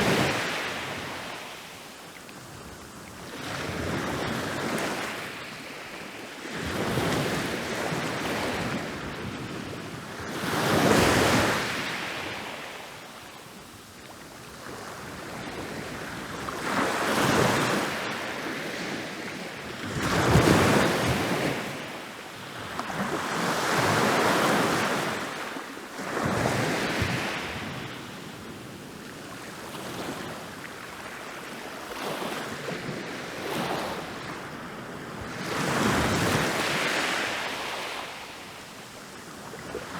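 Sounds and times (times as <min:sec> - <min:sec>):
ocean waves breaking on beach: 0:29.3 - 0:39.9.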